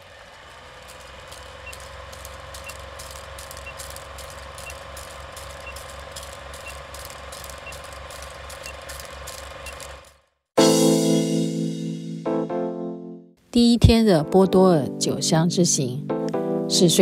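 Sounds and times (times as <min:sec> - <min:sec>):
car engine running: 0:00.0 - 0:10.4
ticking clicks: 0:00.8 - 0:10.2.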